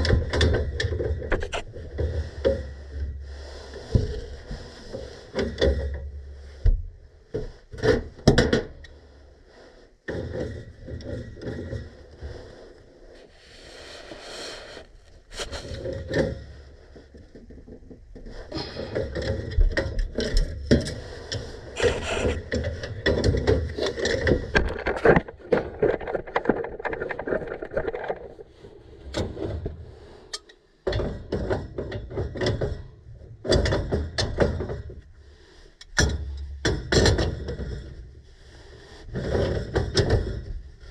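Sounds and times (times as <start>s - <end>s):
hand tools clicking and scraping on metal: 15.3s - 16.4s, 18.4s - 28.4s.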